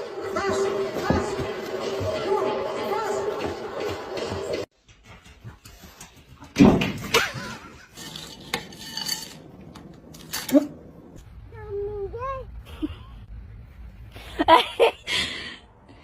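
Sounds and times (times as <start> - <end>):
dishes and cutlery clattering: 7.2 - 10.7.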